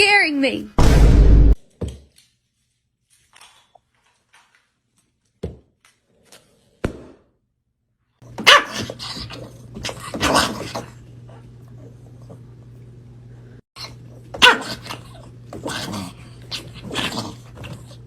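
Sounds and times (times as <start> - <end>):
dog barking and yelping: 8.4 - 11.0, 13.8 - 17.3.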